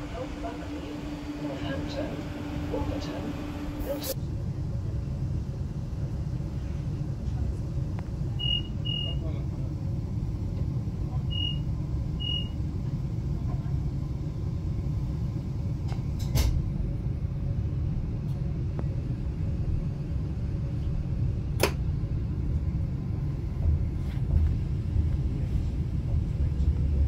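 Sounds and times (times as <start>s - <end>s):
train carriage rumble and hum: 0.0s - 27.0s
short high beeps: 8.4s - 9.2s.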